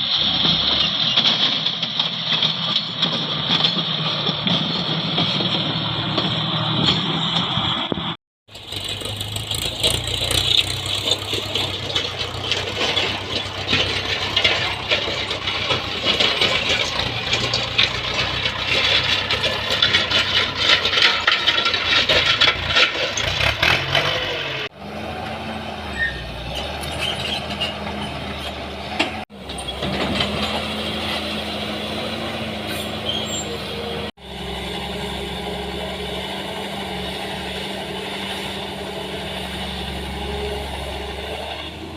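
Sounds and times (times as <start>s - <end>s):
excavator engine and hydraulic hum: 0.0s - 41.9s
scraping and crackling: 8.5s - 24.7s.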